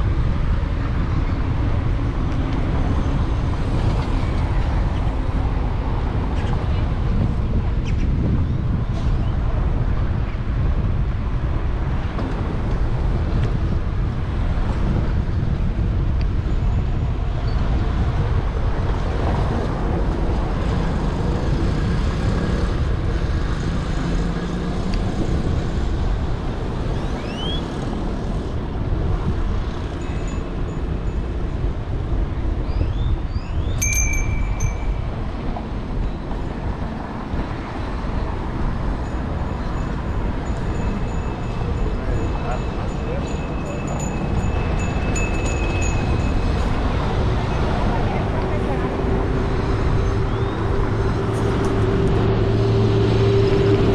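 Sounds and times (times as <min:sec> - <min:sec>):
street traffic: 0:00.0 - 0:53.9
wind rumbling on microphone: 0:00.0 - 0:53.9
high ringing tone: 0:33.6 - 0:35.5.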